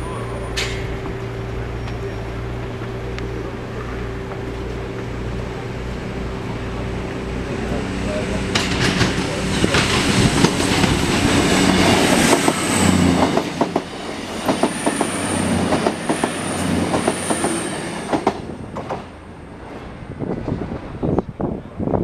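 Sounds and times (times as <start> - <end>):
diesel engines rumbling: 0.0 - 22.0
wheels clattering over rail joints: 8.4 - 19.1.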